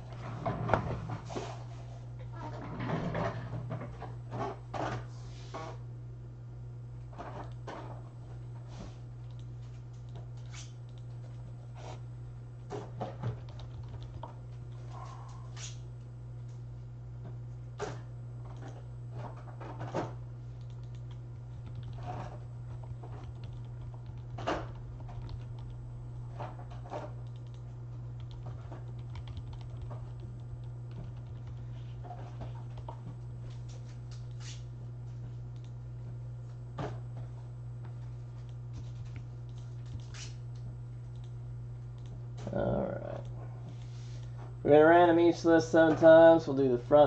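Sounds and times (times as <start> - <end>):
low electrical hum: 0.0 - 47.0
keyboard and mouse clicks: 9.2 - 11.4, 13.3 - 14.8, 20.6 - 25.8, 26.8 - 27.6, 28.2 - 31.6, 32.7 - 33.1, 41.1 - 41.3, 42.0 - 42.2.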